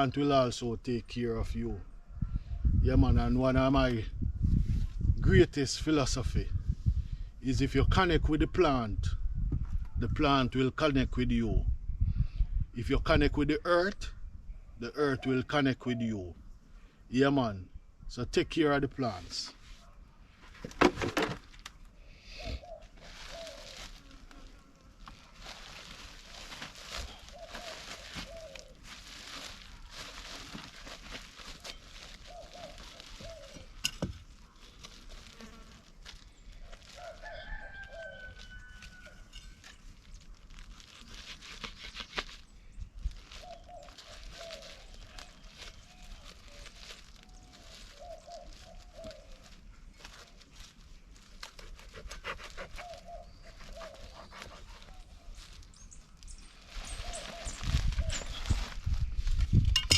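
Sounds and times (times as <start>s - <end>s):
rustling: 19.5s - 59.9s
rooster crowing: 37.0s - 39.6s.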